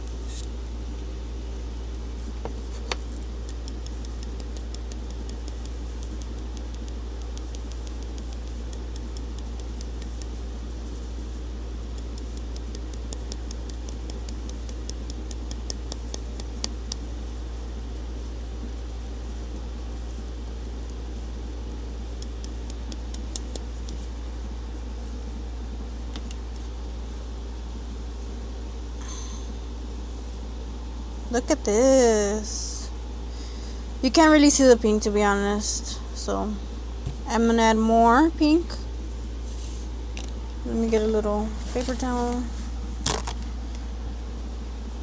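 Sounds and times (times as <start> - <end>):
steady mechanical hum: 0.0 - 45.0
light sharp ticks: 3.4 - 10.4, 11.9 - 17.1, 22.1 - 24.1.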